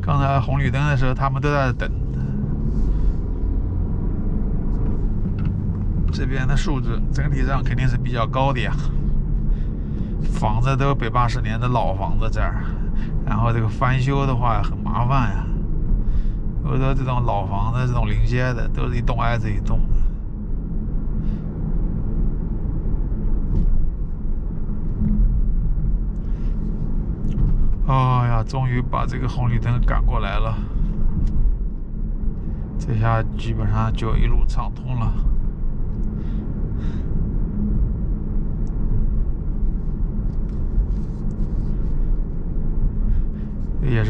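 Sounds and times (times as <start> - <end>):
car engine and road noise: 0.0 - 44.0
faint even hum: 0.0 - 44.0.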